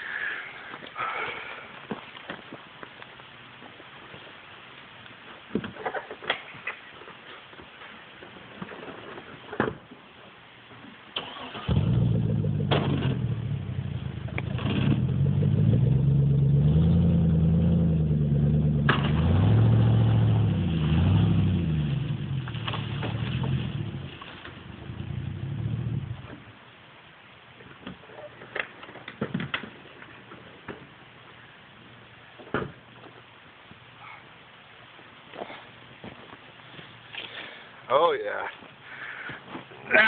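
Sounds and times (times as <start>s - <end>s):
pickup engine revving: 11.2s - 26.4s.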